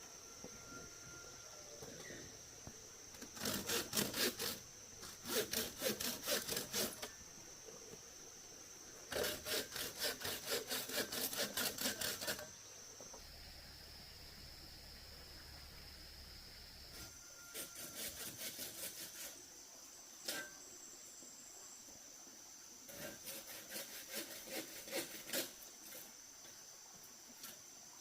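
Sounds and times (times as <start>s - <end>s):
steady high-pitched whine: 0.0s - 23.5s
hand saw cutting: 3.2s - 7.1s, 9.1s - 12.5s, 17.5s - 19.4s, 22.9s - 26.0s.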